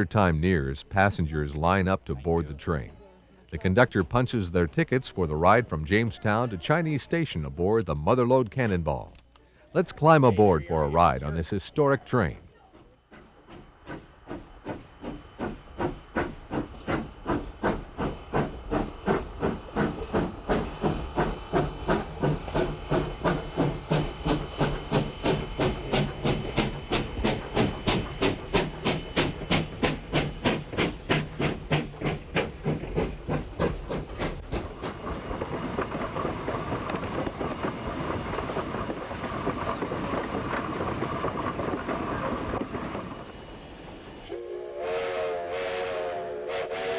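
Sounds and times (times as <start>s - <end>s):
steam locomotive exhaust chuffs: 11.2s - 46.9s.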